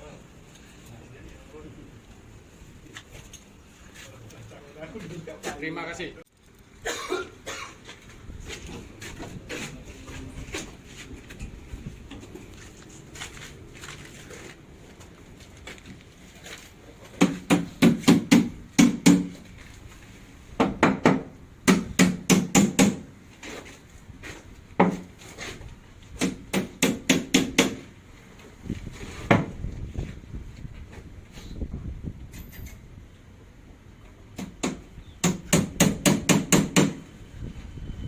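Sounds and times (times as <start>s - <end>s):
hammer driving nails into wood: 17.2s - 19.4s, 20.6s - 23.1s, 26.2s - 27.8s, 34.4s - 37.0s.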